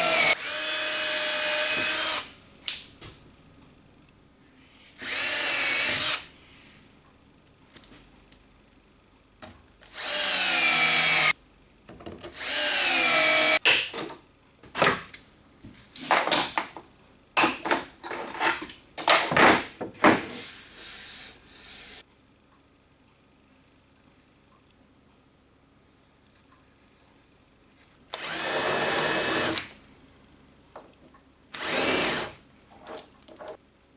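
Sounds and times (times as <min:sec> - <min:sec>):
power drill whining: 0:00.0 - 0:02.2, 0:05.0 - 0:06.2, 0:10.0 - 0:11.3, 0:12.4 - 0:13.6, 0:28.2 - 0:29.6, 0:31.6 - 0:32.3.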